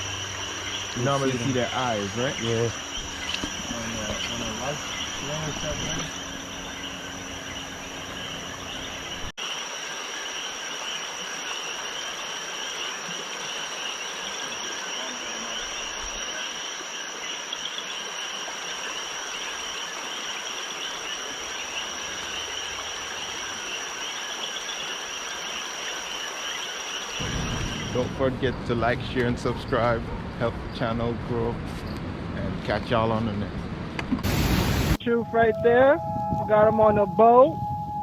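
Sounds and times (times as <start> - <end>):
insect buzz: 0.0 - 28.2
crickets trilling: 0.0 - 31.1.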